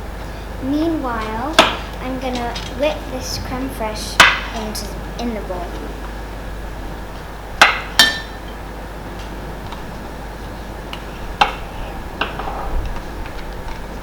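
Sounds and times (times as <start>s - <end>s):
kitchen utensils clinking: 1.2s - 3.6s.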